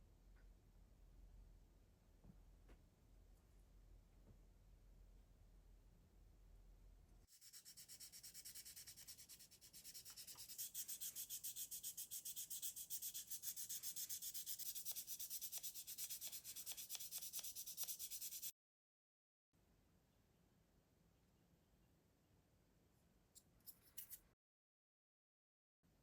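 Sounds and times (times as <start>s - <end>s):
hand sanding plastic part: 7.4s - 18.5s.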